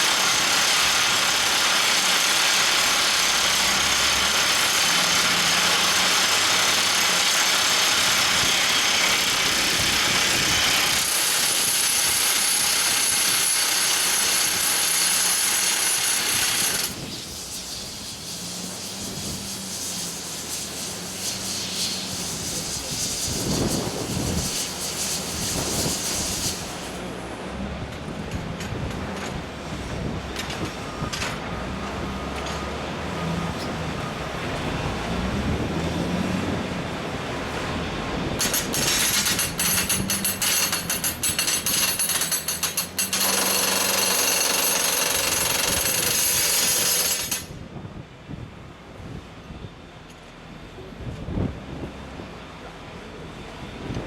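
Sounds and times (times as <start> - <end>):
loud hiss: 0.0 - 27.2
rock drill hammering: 38.4 - 47.6.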